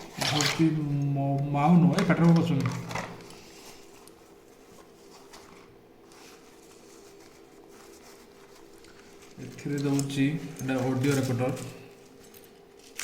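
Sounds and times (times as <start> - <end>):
low steady hum: 0.0 - 13.0
packaging rustling and ticking: 1.7 - 4.2.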